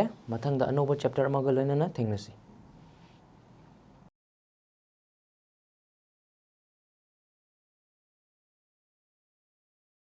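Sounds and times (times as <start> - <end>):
faint room hiss: 0.0 - 4.1.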